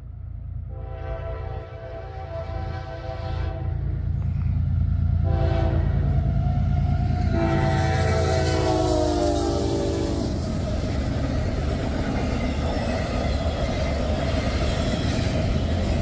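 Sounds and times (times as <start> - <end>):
locomotive engine rumble: 0.0 - 16.0
locomotive air horn blasts: 0.7 - 4.0, 5.2 - 6.2, 7.1 - 10.4.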